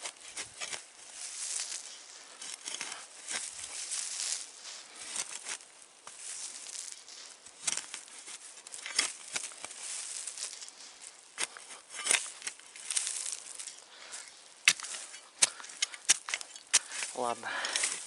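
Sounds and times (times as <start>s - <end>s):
scraping and crunching soil: 0.0s - 18.0s
tool clicking on stones: 11.4s - 12.6s, 14.6s - 18.0s.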